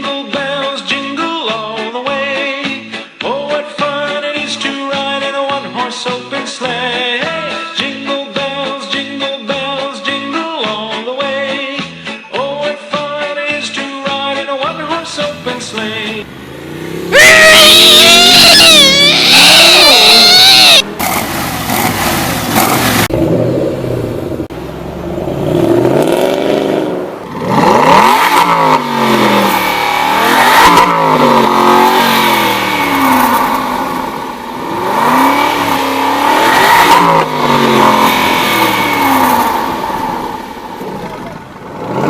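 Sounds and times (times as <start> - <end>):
car engine accelerating hard: 14.8 - 42.0.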